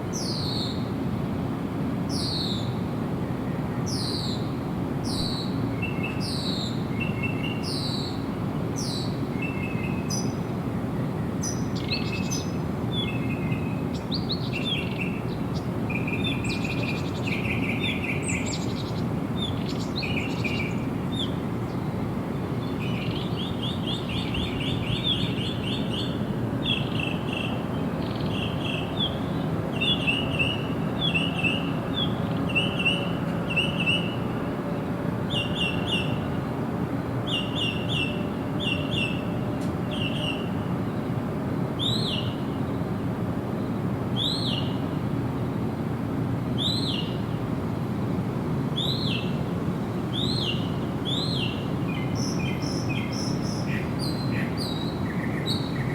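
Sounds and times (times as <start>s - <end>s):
songbirds chirping: 8.8s - 45.1s, 48.8s - 55.9s.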